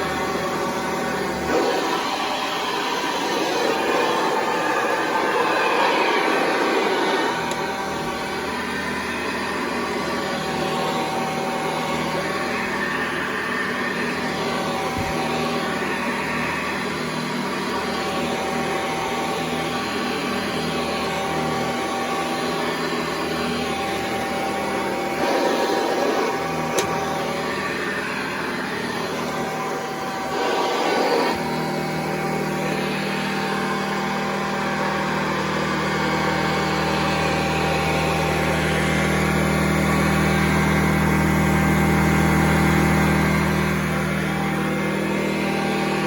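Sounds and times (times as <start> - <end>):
vacuum cleaner running: 0.0 - 46.0.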